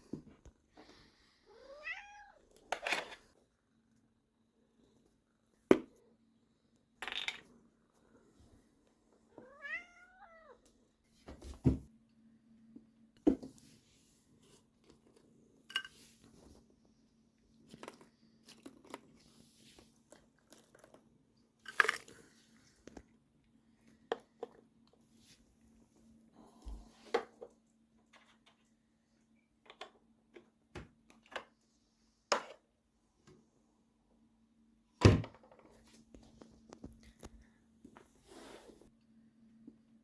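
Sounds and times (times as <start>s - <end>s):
cat meowing: 1.5s - 2.4s, 9.4s - 10.6s
faint steady hum: 35.6s - 40.0s.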